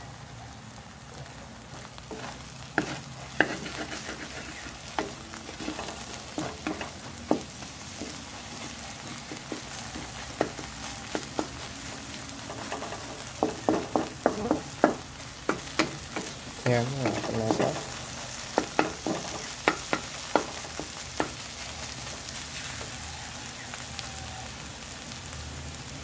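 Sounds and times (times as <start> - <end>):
eggs sizzling in a wok: 0.0 - 26.0
wooden spatula scraping: 1.8 - 23.0
spatula knocking against pan: 2.1 - 8.2, 9.0 - 11.7, 12.5 - 16.4, 17.0 - 21.4.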